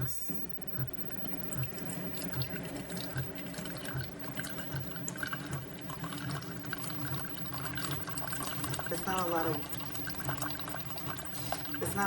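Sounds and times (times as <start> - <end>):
coffee maker pump humming: 0.0 - 12.0
liquid dripping into cup: 0.5 - 12.0.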